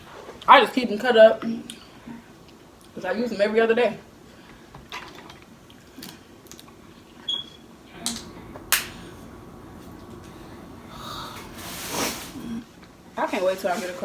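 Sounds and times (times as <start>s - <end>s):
crab shells cracking: 8.0s - 9.0s.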